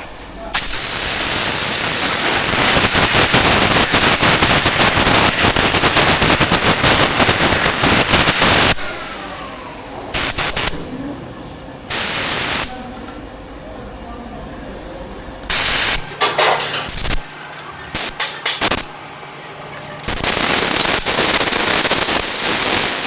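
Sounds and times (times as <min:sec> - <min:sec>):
short hissing bursts: 0:00.6 - 0:08.9, 0:10.2 - 0:10.8, 0:11.9 - 0:12.8, 0:15.5 - 0:16.1, 0:20.1 - 0:23.0
power tool hammering rattle: 0:15.6 - 0:17.3, 0:17.9 - 0:19.0, 0:19.7 - 0:23.0.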